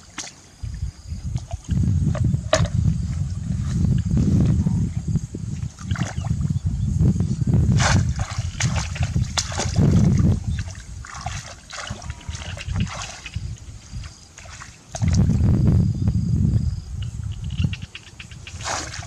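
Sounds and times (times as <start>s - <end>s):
water splashing and sloshing: 0.0s - 4.1s, 5.5s - 6.5s, 7.7s - 15.6s, 17.6s - 19.0s
heavy low rumbling: 1.2s - 11.0s, 15.0s - 17.7s.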